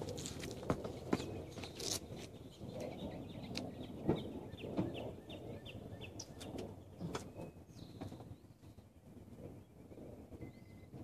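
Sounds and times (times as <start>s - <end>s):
small bird chirping: 0.9s - 8.8s.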